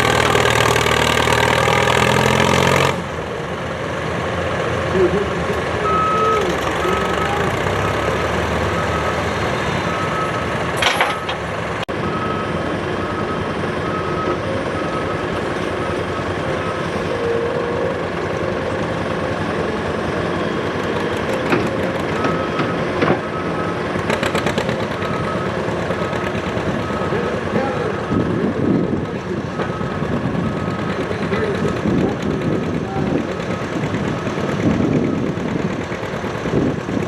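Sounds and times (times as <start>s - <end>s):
engine running: 0.0s - 37.0s
reversing alarm beeping: 5.8s - 11.4s, 12.0s - 17.9s, 22.1s - 23.9s, 24.9s - 28.5s, 29.5s - 31.7s
knocks and rattles: 10.7s - 11.5s.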